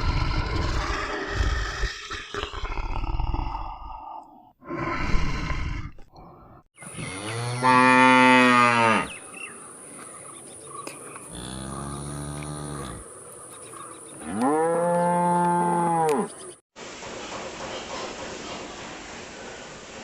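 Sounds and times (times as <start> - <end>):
cow mooing: 11.3 - 13.0, 14.2 - 16.3.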